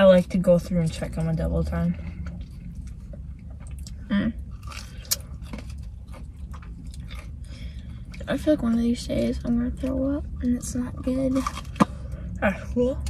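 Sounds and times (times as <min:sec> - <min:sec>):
low rumble inside car: 0:00.0 - 0:13.0
chewing and mouth sounds: 0:02.1 - 0:10.7.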